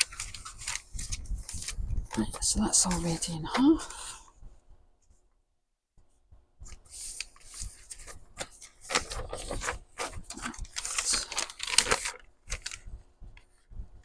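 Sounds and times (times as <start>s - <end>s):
paper rustling and crackling: 0.0s - 4.0s, 6.7s - 12.9s.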